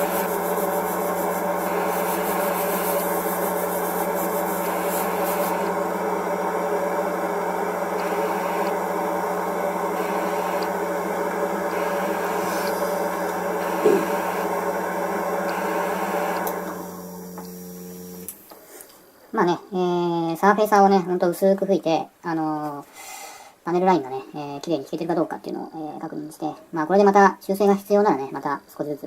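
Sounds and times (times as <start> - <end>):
airbrush spraying hiss: 0.0 - 5.7, 11.7 - 14.5.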